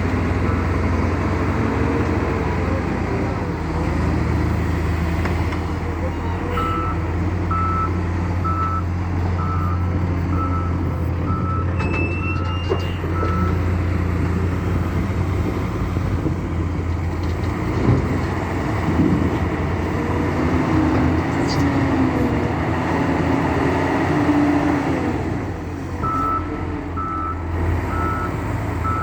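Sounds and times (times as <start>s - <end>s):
diesel engine running: 0.0s - 29.0s
reversing alarm beeping: 6.5s - 13.6s, 26.0s - 29.0s.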